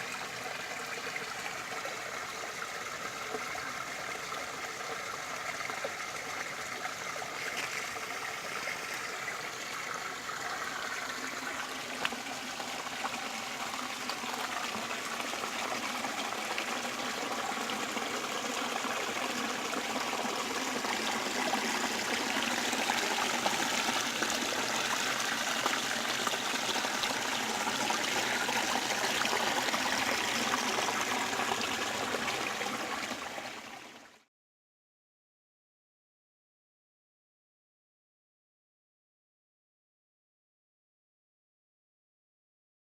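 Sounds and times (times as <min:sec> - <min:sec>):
small waterfall splashing: 0:00.0 - 0:34.1.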